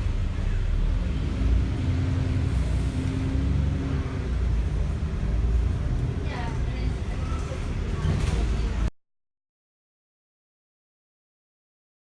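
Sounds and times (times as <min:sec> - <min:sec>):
engine rumble: 0:00.0 - 0:08.9.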